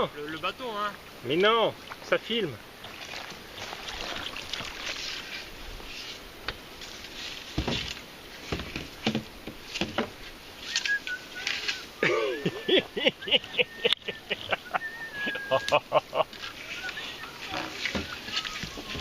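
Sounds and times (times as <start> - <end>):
water splashing: 0.5 - 13.0, 13.6 - 19.0
paddles knocking on hulls: 7.5 - 10.3, 17.5 - 19.0.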